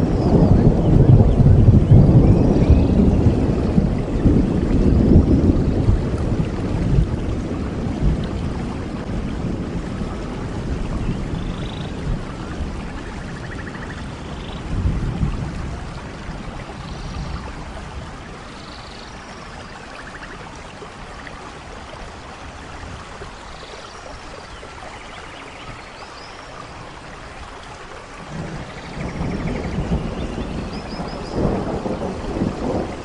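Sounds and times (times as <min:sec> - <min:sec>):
thunder rumbling: 0:00.0 - 0:18.6, 0:28.2 - 0:33.0
steady rainfall: 0:00.0 - 0:33.0.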